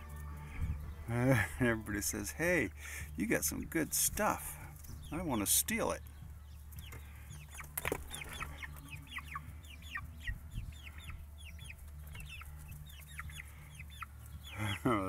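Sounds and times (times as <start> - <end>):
hens clucking and chirping: 0.0 - 15.0.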